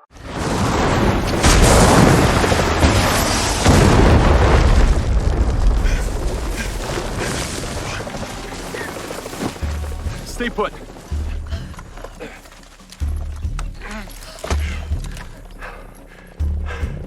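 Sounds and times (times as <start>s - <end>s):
explosion blasts: 0.1s - 9.0s
deep rumble: 0.4s - 12.3s.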